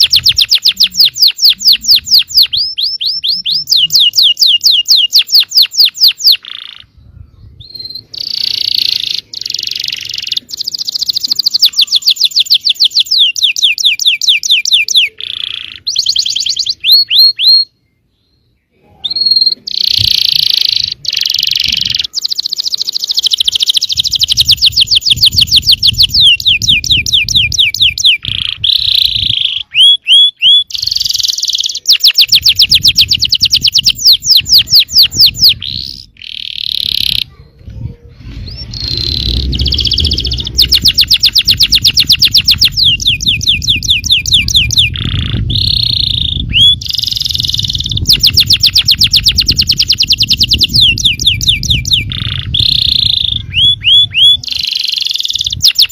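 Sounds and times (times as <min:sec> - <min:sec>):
canary singing: 0:00.0 - 0:55.9
low rumble: 0:37.4 - 0:44.0.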